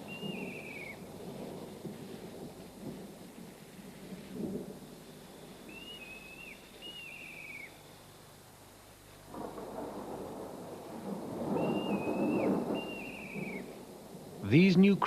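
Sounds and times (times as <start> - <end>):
low rumble and hiss: 0.0 - 15.0
high wavering animal calls: 11.6 - 13.7.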